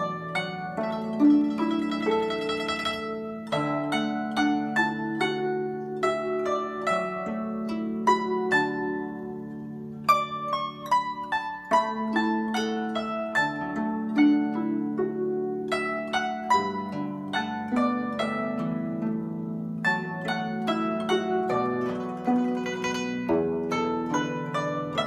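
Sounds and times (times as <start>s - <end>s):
guzheng melody: 0.0s - 25.0s.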